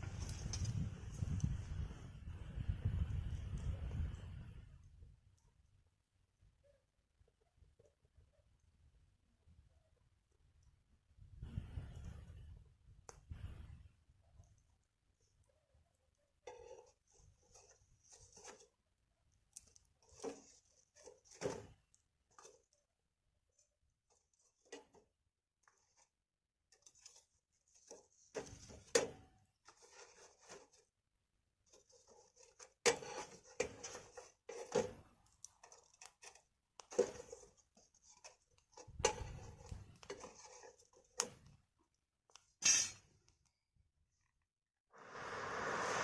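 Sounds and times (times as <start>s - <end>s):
wood fire crackling: 0.0s - 2.1s.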